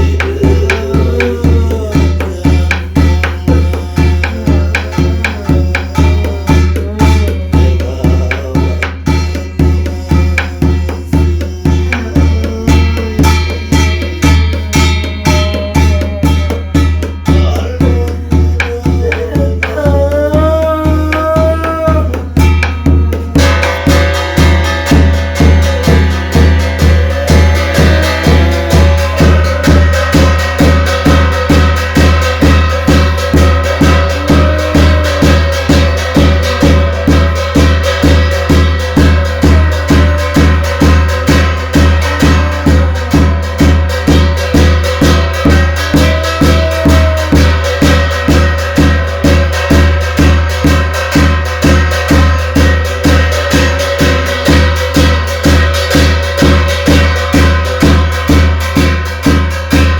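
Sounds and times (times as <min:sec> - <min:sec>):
drum beating steadily: 0:00.0 - 0:59.9
long wavering melodic notes: 0:22.3 - 0:50.5.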